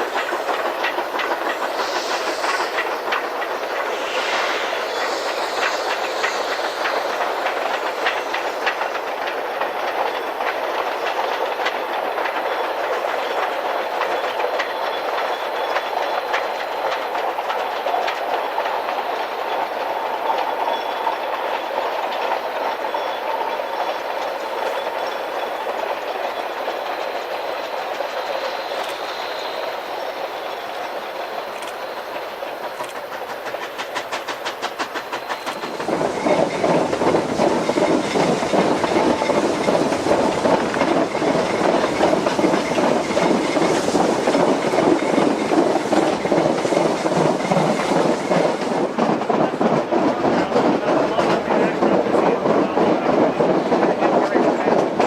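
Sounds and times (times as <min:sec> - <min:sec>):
wheels clicking over track: 0:00.0 - 0:29.7
train rolling on rails: 0:00.0 - 0:55.0.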